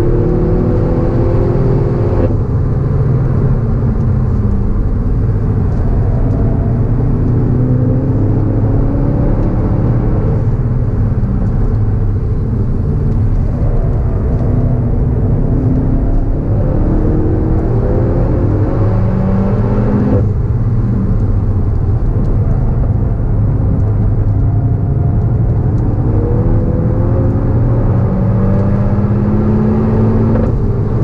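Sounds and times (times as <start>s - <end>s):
car engine revving hard: 0.0s - 2.3s, 6.9s - 10.6s, 14.3s - 20.2s, 26.0s - 30.9s.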